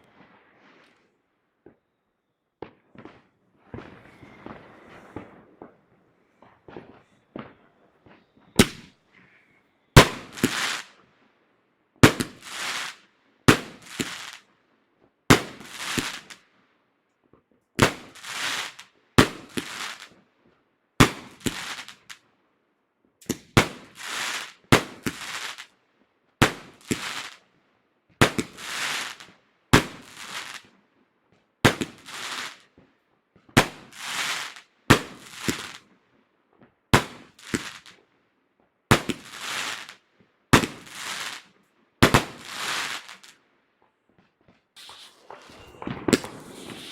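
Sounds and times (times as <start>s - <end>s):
fireworks banging: 2.6s - 9.4s, 10.0s - 10.9s, 40.6s - 41.4s, 44.4s - 46.9s
fireworks crackling hiss: 3.6s - 11.0s, 12.1s - 13.0s, 13.6s - 14.4s, 15.5s - 16.4s, 17.8s - 20.1s, 21.1s - 22.2s, 23.3s - 25.7s, 26.4s - 27.4s, 28.3s - 30.6s, 31.7s - 32.7s, 33.6s - 35.8s, 37.1s - 37.9s, 39.0s - 40.0s, 40.6s - 41.4s, 42.0s - 43.4s, 44.8s - 46.9s.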